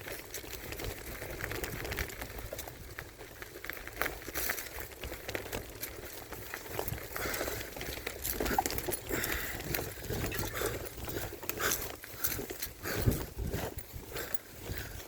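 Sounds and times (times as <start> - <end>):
bike rattling and knocking: 0.0 - 15.0
bike tyre rumble: 0.0 - 15.0
rider breathing hard: 4.1 - 15.0.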